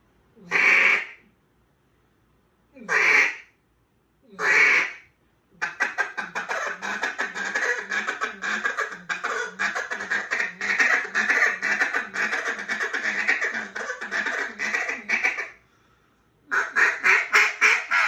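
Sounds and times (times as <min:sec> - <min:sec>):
duck call quacks: 0:00.5 - 0:01.2, 0:02.9 - 0:03.4, 0:04.4 - 0:05.0, 0:05.6 - 0:15.6, 0:16.5 - 0:18.0.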